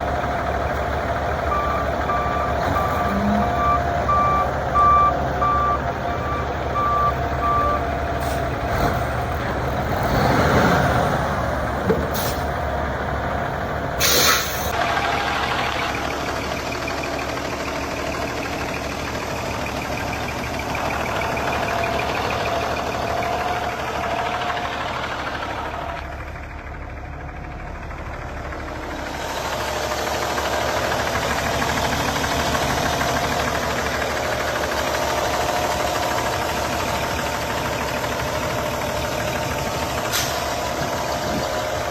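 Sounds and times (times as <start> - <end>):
diesel truck engine running: 0.0 - 41.9
backup alarm beeping: 1.5 - 7.8
air hiss: 14.0 - 14.7.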